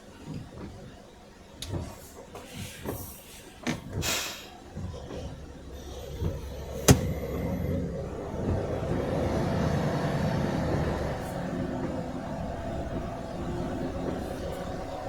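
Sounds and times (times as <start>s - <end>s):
vehicle rumbling: 4.8s - 15.0s.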